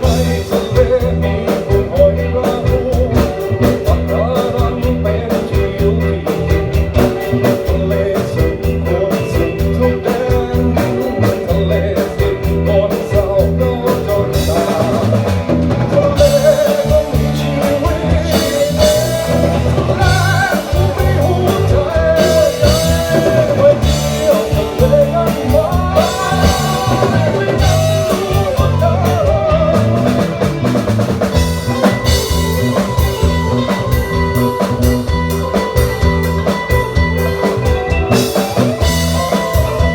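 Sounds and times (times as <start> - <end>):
band music with drums and guitar: 0.0 - 39.9
sliding melody line: 14.1 - 39.9.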